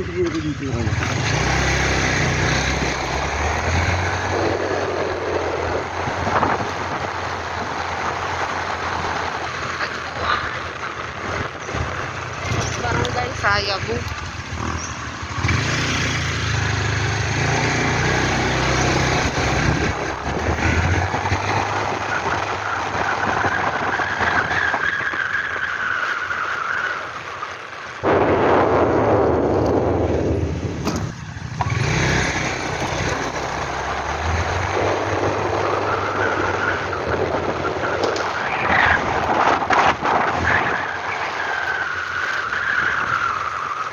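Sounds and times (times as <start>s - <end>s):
vehicle engine running: 0.0s - 22.8s, 28.0s - 40.4s
road noise: 0.0s - 43.9s
loud rushing noise: 28.0s - 35.7s.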